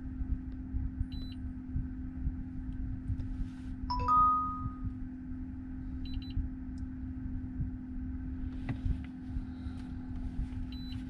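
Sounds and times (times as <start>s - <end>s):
car cabin hum: 6.4s - 11.0s.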